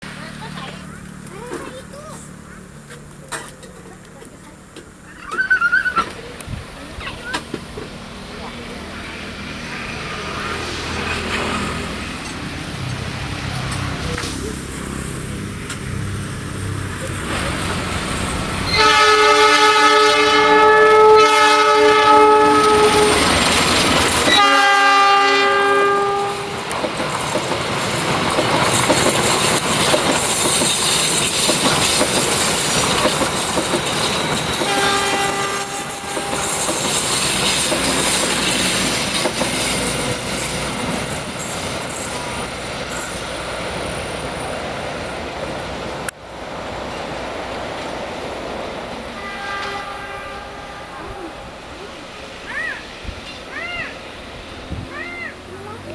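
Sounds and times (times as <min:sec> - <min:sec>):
high wheel squeal: 0:05.0 - 0:06.4, 0:13.2 - 0:26.6, 0:27.9 - 0:46.1
train wheels clattering on rails: 0:10.5 - 0:50.1
train horn blasts: 0:18.7 - 0:26.7, 0:34.4 - 0:36.6, 0:49.2 - 0:51.4.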